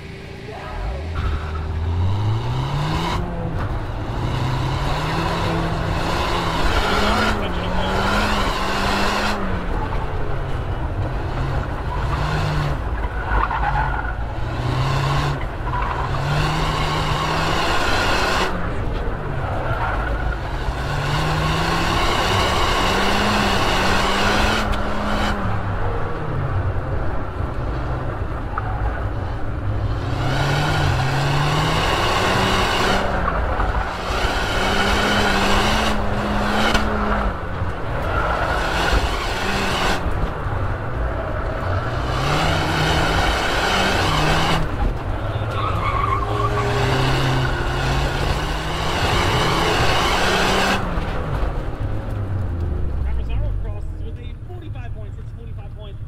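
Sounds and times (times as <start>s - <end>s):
car engine revving hard: 1.2s - 9.8s, 11.2s - 12.9s, 14.3s - 18.8s, 19.8s - 25.6s, 29.8s - 51.5s
tyres squealing: 42.1s - 50.5s.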